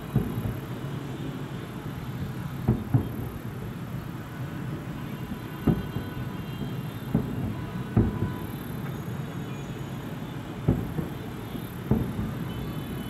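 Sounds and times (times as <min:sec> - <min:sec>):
firework shells booming: 0:00.0 - 0:00.9, 0:02.6 - 0:03.6, 0:05.4 - 0:08.9, 0:10.6 - 0:13.0.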